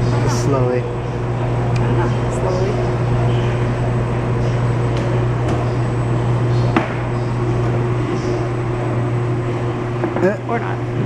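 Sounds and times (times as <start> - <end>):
laundry machines humming: 0.0 - 11.0.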